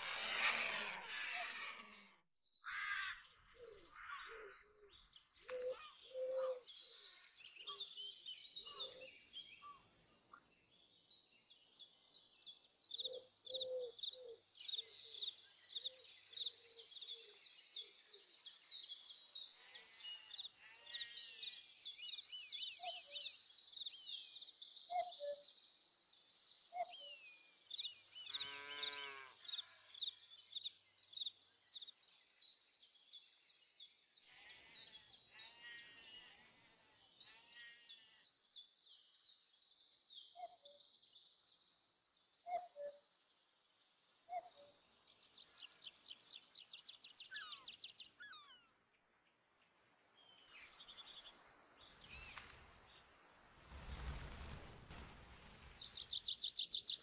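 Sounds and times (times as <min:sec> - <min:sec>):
small birds singing: 0:00.0 - 0:57.0.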